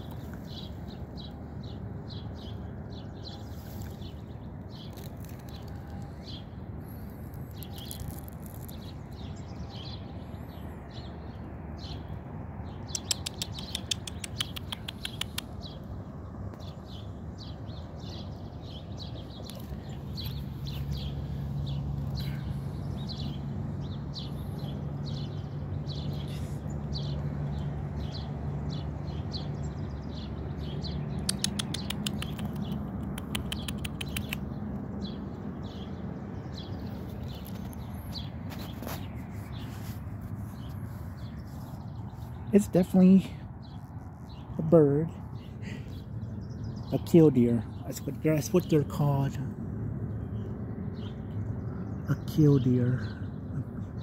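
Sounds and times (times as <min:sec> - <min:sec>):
birds chirping: 0:00.0 - 0:54.0
bird trilling runs: 0:12.9 - 0:15.8.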